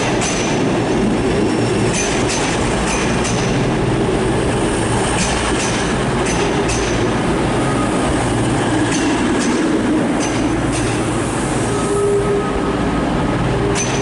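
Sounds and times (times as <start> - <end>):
train rumbling on track: 0.0 - 14.0
clicks over rail joints: 1.9 - 3.6, 5.2 - 7.0, 8.9 - 11.0
high-pitched wheel squeals: 11.6 - 12.9.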